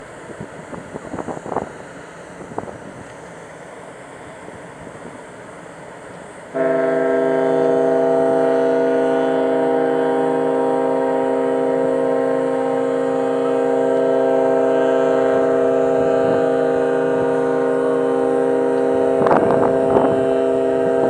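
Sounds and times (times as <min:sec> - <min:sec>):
ship's whistle blast: 0:06.5 - 0:21.0.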